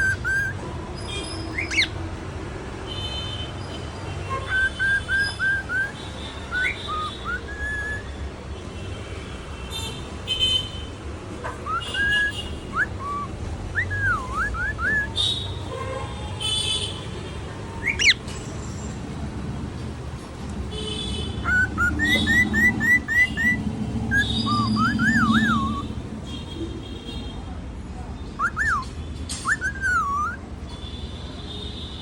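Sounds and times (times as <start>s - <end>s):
cockatiel whistling a tune: 0.0s - 0.6s, 1.5s - 1.9s, 4.4s - 8.2s, 11.6s - 15.4s, 17.8s - 18.2s, 21.4s - 25.9s, 28.4s - 30.4s.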